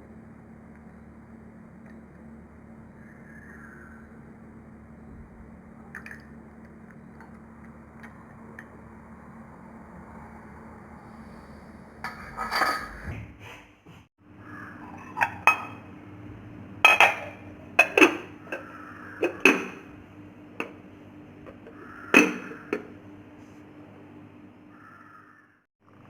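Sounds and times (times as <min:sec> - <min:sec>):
steady low hum: 0:00.0 - 0:26.0
bowl and lid clinking: 0:14.9 - 0:15.8, 0:16.8 - 0:19.9, 0:22.2 - 0:22.9.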